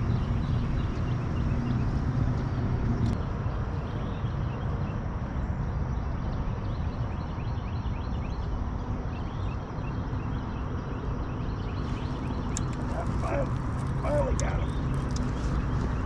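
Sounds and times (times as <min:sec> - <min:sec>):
steady low rumbling: 0:11.4 - 0:16.0.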